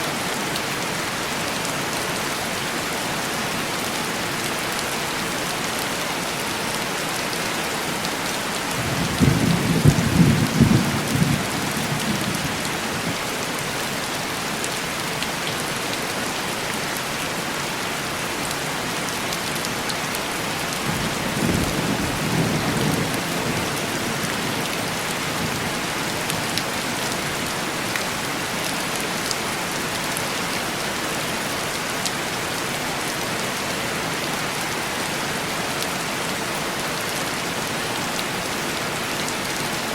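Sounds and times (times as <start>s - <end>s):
heavy rain on window glass: 3.0s - 33.7s.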